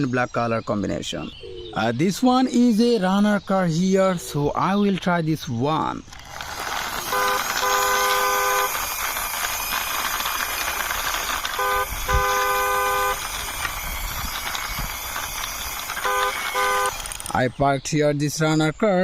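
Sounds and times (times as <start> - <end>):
car horn tooting: 7.0 - 8.8, 11.5 - 13.3, 16.0 - 17.0.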